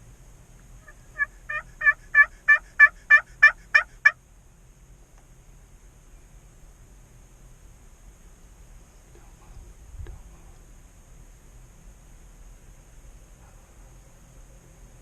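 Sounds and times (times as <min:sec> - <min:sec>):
turkey yelps: 0:00.8 - 0:04.2.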